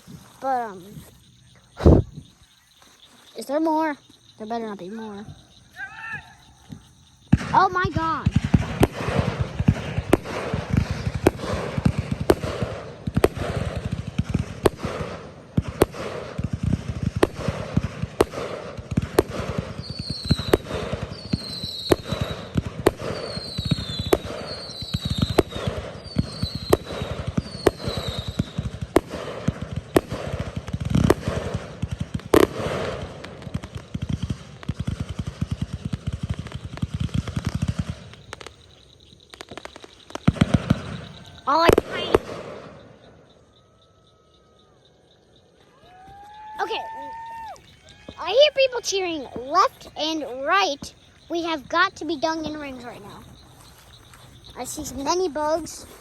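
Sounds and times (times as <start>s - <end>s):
high falling chirp: 0.0s - 11.6s, 38.3s - 42.2s, 42.8s - 56.0s
fireworks popping and crackling: 0.0s - 43.2s, 45.7s - 56.0s
fireworks booming: 0.0s - 43.8s, 45.8s - 56.0s.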